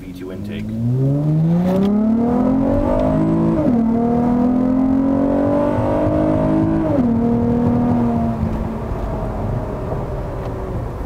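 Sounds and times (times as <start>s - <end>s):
car engine accelerating hard: 0.2s - 11.0s
gear upshift: 0.3s - 9.2s.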